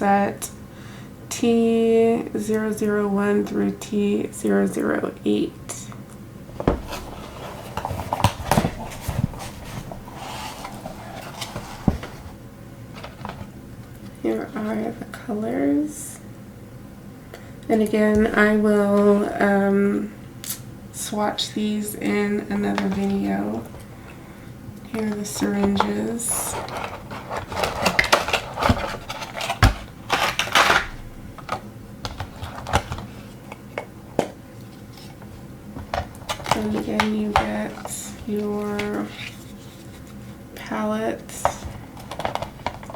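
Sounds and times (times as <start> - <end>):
packaging rustling: 6.6 - 12.4, 25.0 - 33.4, 34.7 - 40.4, 41.4 - 42.9
plastic parts clicking: 25.4 - 33.0, 41.4 - 42.9
knocks and clicks of containers: 41.5 - 42.9.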